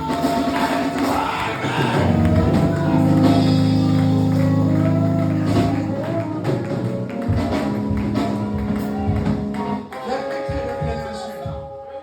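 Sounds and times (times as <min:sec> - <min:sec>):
drum strikes: 0:00.0 - 0:09.8
held low chord: 0:02.0 - 0:09.8
melody notes: 0:02.1 - 0:10.2.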